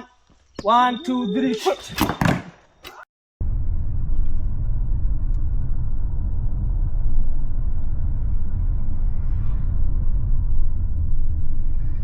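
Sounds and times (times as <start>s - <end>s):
car engine and road noise: 3.4s - 11.7s.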